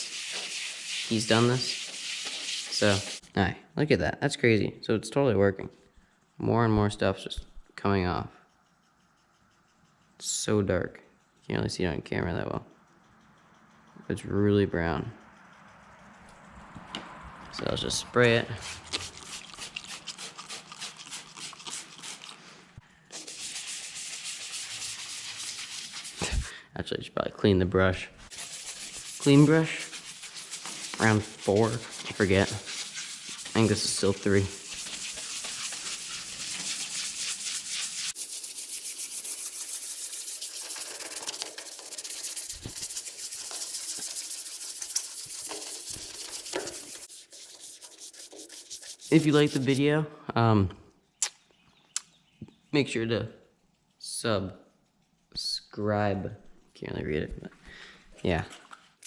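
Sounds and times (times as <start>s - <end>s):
toothbrush scrubbing plastic: 0.0s - 3.2s, 18.6s - 22.4s, 23.1s - 26.5s, 28.3s - 49.8s.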